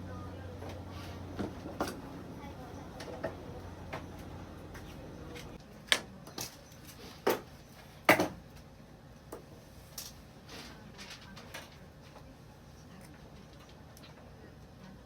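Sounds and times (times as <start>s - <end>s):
low steady hum: 0.0s - 5.9s.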